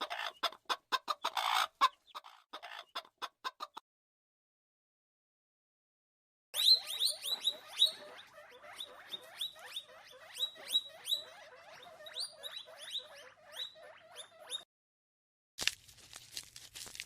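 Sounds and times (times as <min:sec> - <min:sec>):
animal squeaking rapidly: 0:01.3 - 0:02.8, 0:06.6 - 0:14.7.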